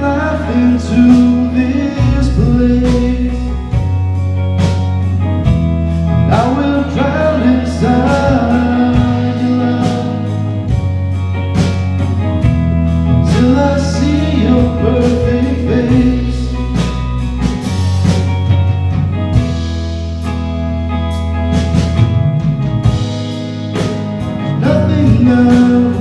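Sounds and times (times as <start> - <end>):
person singing: 0.0 - 3.9, 6.2 - 10.8, 13.1 - 17.0, 24.4 - 26.0
worship band playing: 0.0 - 26.0.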